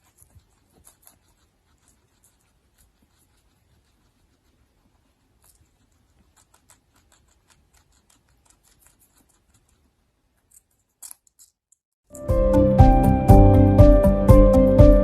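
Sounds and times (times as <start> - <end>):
soft clicks and scratches: 0.0 - 11.8
loud music: 12.2 - 15.0.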